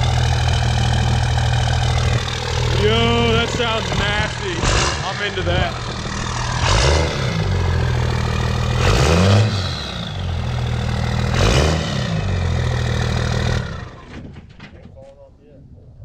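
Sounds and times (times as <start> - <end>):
diesel engine revving: 0.0 - 14.2.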